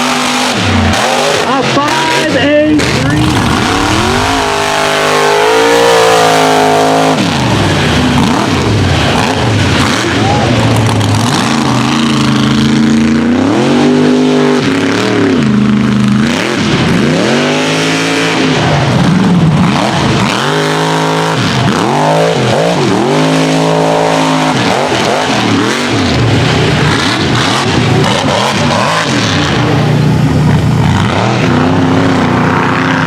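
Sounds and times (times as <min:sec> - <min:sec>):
truck engine revving: 0:00.0 - 0:33.0.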